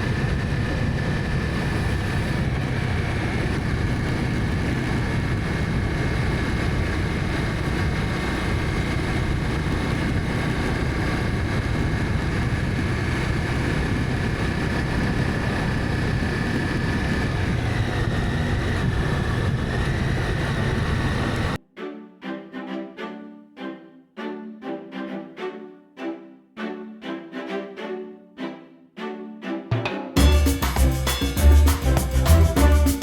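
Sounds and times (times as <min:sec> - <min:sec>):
motorcycle engine running: 0:00.0 - 0:21.6
wind rushing over microphone: 0:00.0 - 0:21.6
thin high whine: 0:30.2 - 0:33.0.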